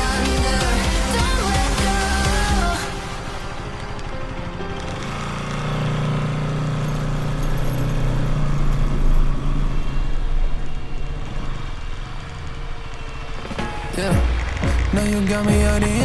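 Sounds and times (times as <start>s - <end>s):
motorcycle engine running: 4.8s - 10.0s.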